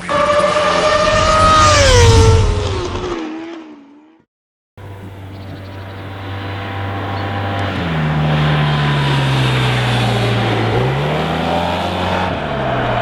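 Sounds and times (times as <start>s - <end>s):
scooter engine running: 4.8s - 13.0s.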